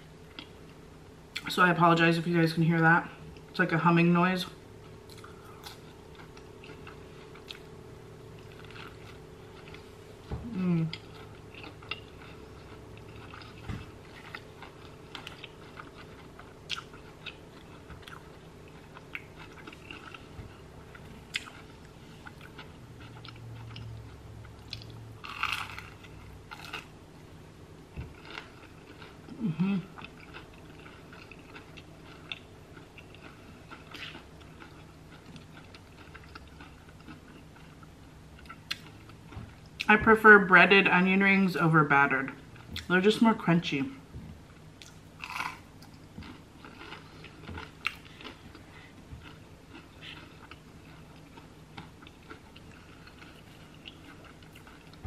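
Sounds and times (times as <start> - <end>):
refrigerator hum: 0.0 - 55.0
person chewing: 4.8 - 26.9, 27.9 - 39.9, 44.8 - 55.0
crunchy bite: 44.8 - 45.7.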